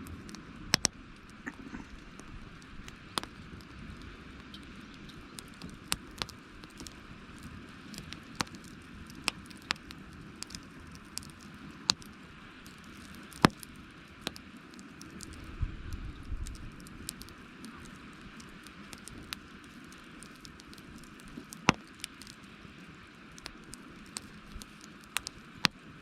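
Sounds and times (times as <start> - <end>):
campfire crackling: 0.0 - 26.0
low rumble: 15.2 - 17.3.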